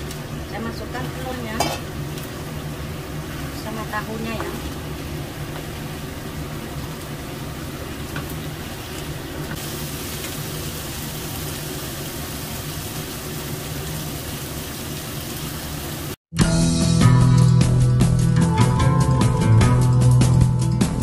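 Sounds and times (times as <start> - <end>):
food sizzling in a wok: 0.0 - 16.2.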